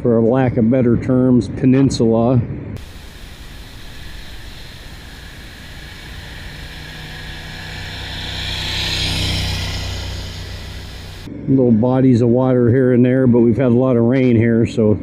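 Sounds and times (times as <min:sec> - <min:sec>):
rushing wind: 0:02.4 - 0:11.5
motorcycle engine running: 0:02.8 - 0:11.3
road noise: 0:02.8 - 0:11.3.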